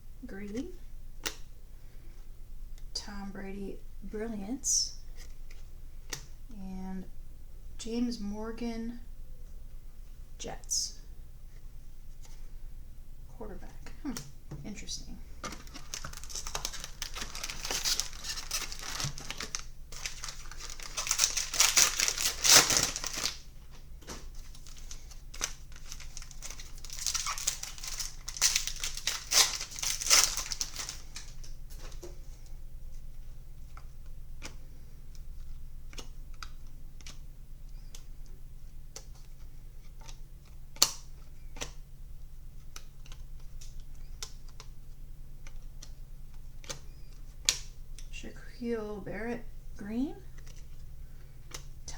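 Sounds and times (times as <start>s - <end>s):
card pack wrapper crinkling: 15.4s - 32.1s
cards clicking and shuffling: 15.4s - 33.1s.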